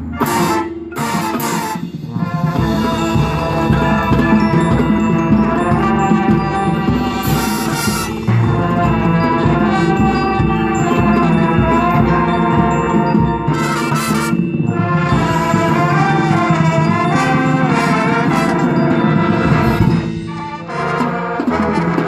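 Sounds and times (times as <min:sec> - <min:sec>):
accented percussion hit: 0:00.0 - 0:22.0
marching band playing: 0:00.0 - 0:22.0.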